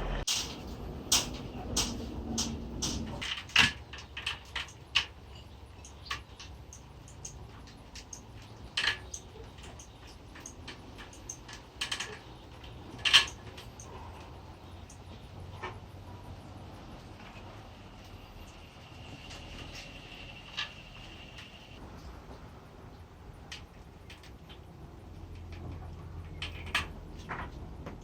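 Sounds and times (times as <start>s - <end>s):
sharp clicks and metal knocks: 0.3s - 15.8s, 23.4s - 28.0s.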